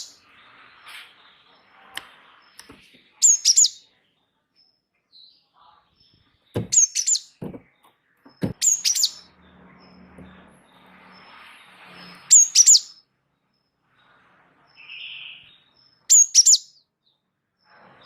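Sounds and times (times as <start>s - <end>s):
songbird calling: 0.0s - 4.0s, 4.6s - 11.3s, 12.0s - 13.0s, 14.7s - 18.0s
low knocks: 7.4s - 7.7s.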